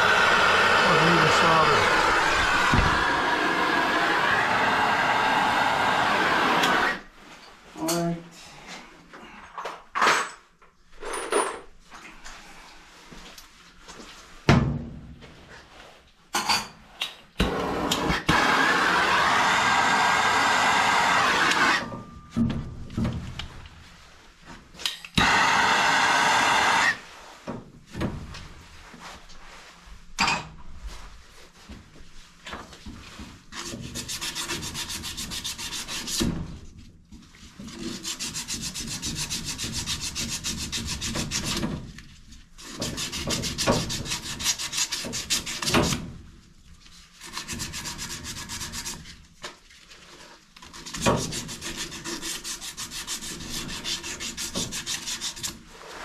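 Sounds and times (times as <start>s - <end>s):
loud rushing burst: 0.8s - 5.8s.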